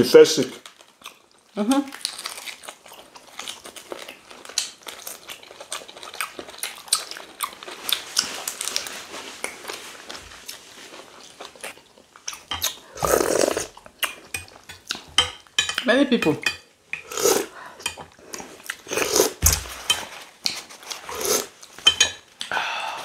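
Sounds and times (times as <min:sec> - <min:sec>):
chewing and biting chicken: 0:00.6 - 0:09.8
slurp of broth from a spoon: 0:13.0 - 0:13.7, 0:17.0 - 0:17.5, 0:21.0 - 0:21.5.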